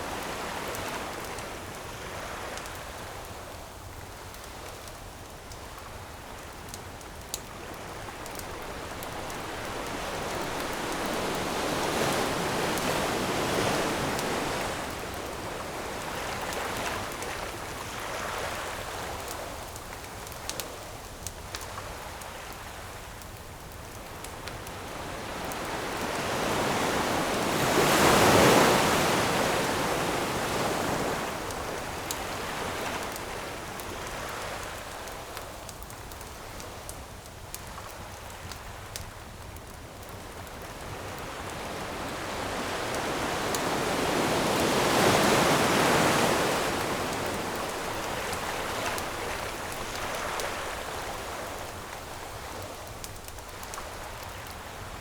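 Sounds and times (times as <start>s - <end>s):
campfire popping and crackling: 2.6s - 18.0s, 33.0s - 42.0s, 44.5s - 55.0s
ocean waves breaking on shore: 6.2s - 19.7s, 24.3s - 35.4s, 40.0s - 55.0s.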